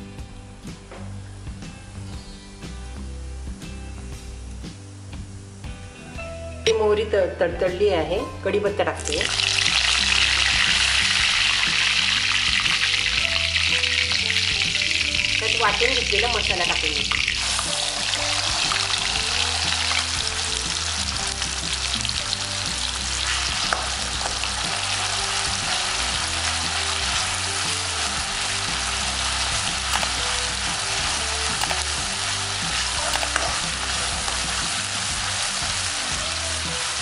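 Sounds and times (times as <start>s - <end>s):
paste sizzling in hot oil: 9.0s - 37.0s.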